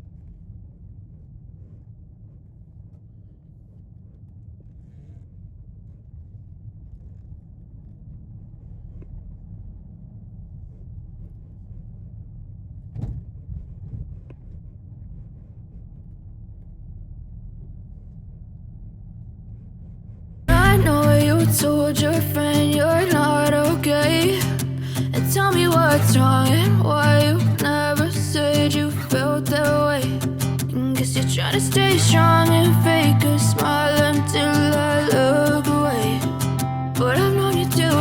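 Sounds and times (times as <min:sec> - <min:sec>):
brief knocks: 0:13.0 - 0:13.4
loud music: 0:20.5 - 0:21.9.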